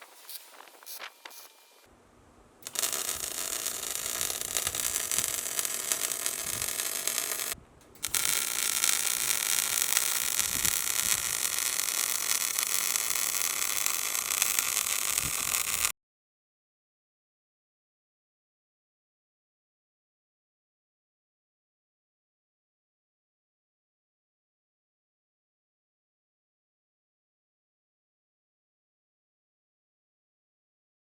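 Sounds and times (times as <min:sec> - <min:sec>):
welding arc crackling and hissing: 0:00.0 - 0:01.9, 0:02.6 - 0:15.9.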